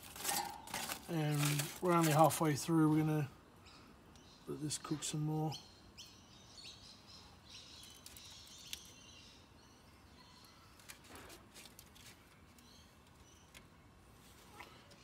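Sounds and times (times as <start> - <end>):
faint bird chirps: 3.6 - 11.1.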